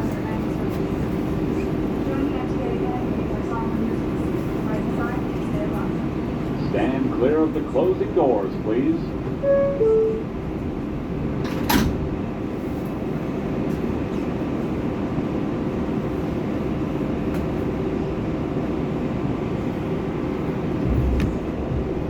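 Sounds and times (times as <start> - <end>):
train rumbling: 0.0 - 22.0
subway doors knocking shut: 9.2 - 12.6, 20.3 - 22.0.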